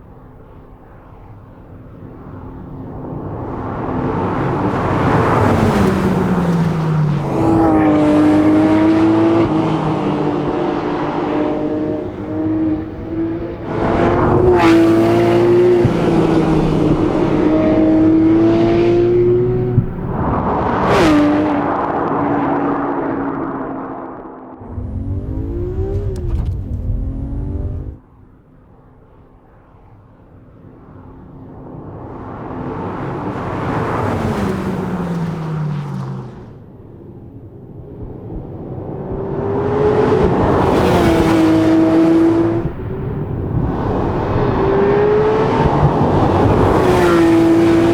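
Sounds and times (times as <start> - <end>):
tyres on road: 0.0 - 29.6, 30.4 - 47.9
car engine under throttle: 3.1 - 28.0, 37.9 - 47.9.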